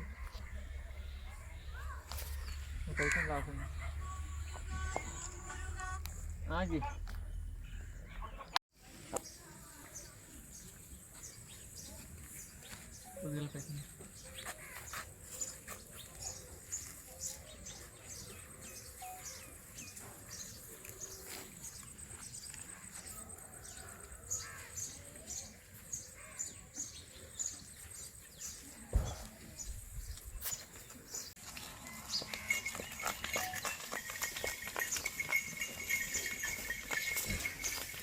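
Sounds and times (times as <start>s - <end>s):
small birds chirping: 0.0s - 31.4s
low thud: 28.9s - 29.8s.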